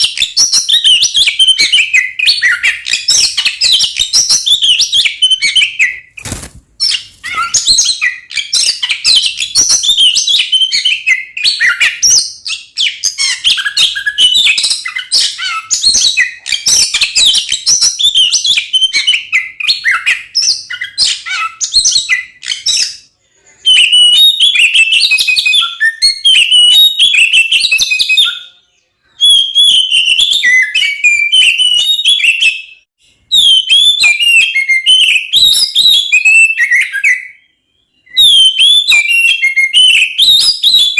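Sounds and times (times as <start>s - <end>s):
songbird whistling and chirping: 0.0s - 40.9s.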